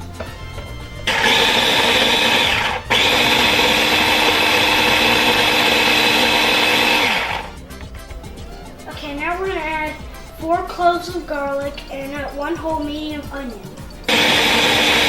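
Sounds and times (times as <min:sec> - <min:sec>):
kitchen appliance motor chopping: 0:01.0 - 0:07.6, 0:14.1 - 0:15.0.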